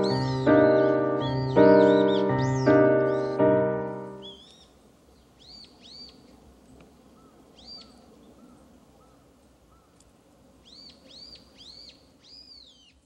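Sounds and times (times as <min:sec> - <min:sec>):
bird calling down-slurred notes: 0:00.0 - 0:04.7
softer lower bird notes: 0:00.0 - 0:06.4
faint outdoor background: 0:00.0 - 0:13.0.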